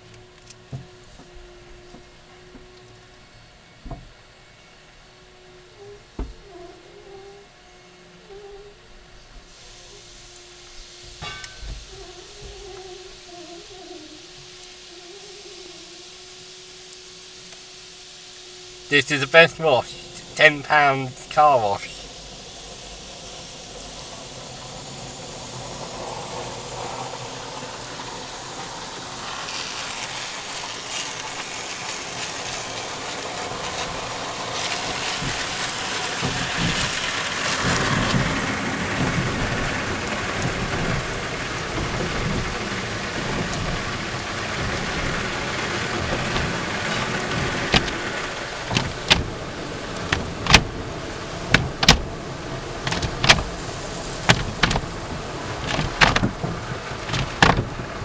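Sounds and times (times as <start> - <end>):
car wash water spraying: 0.0 - 7.0, 8.7 - 58.0
sharp knocks: 50.1 - 50.8, 51.5 - 52.1, 52.8 - 53.5, 54.3 - 54.9, 55.6 - 57.8.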